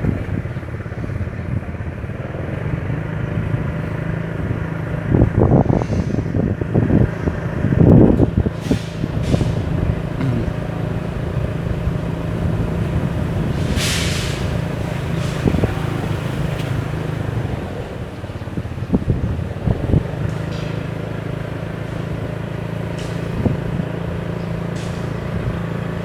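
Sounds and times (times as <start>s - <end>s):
vehicle engine humming: 0.0s - 26.0s
short hiss: 13.6s - 14.6s.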